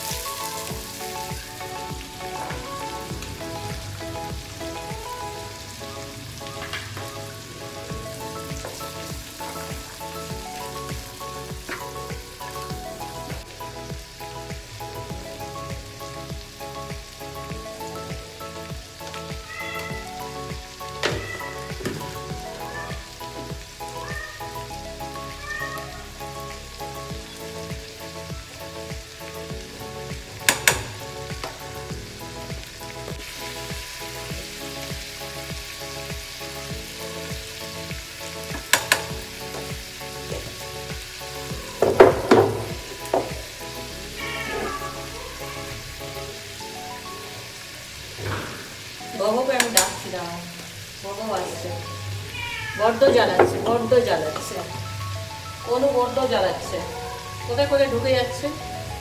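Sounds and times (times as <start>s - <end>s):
vegetables sizzling in oil: 0.0s - 59.0s
wavering pitched calls: 19.3s - 27.9s, 43.9s - 48.0s.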